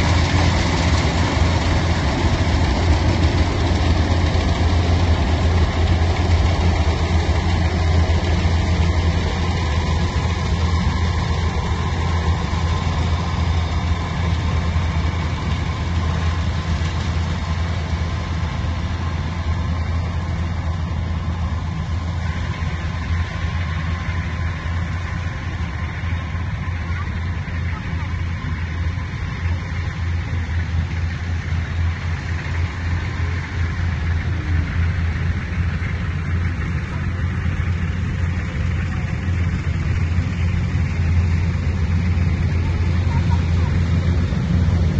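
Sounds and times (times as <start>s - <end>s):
farm machine engine humming: 0.0s - 44.9s.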